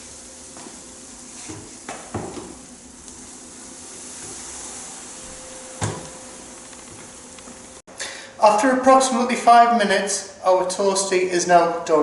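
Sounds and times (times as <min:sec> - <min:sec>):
sandwiches sizzling in a grill: 0:00.0 - 0:07.8.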